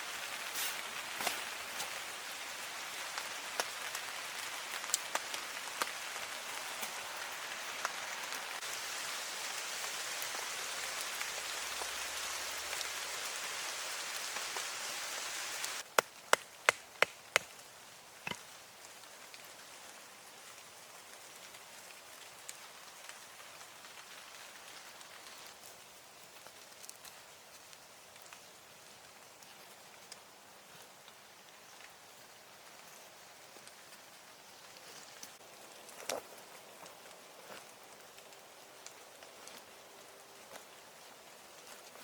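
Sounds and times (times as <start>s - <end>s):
steady rain falling: 0.0s - 42.0s.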